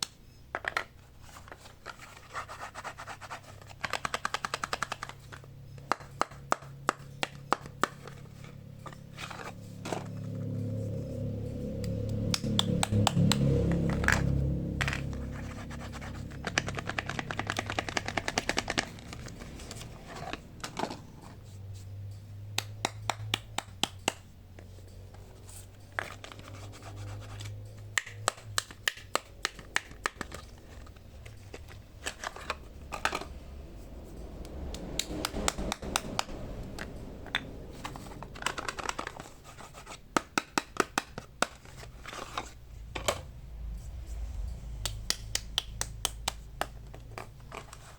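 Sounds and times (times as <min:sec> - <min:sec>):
sharp taps and clicks: 0:22.6 - 0:24.2, 0:44.8 - 0:47.3.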